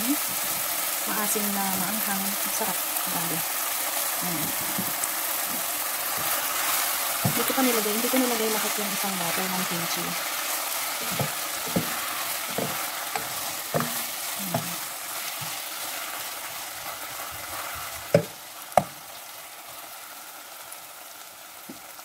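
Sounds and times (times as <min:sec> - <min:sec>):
kimchi sizzling in pot: 0:00.0 - 0:22.0
spatula stirring and scraping: 0:04.4 - 0:19.0.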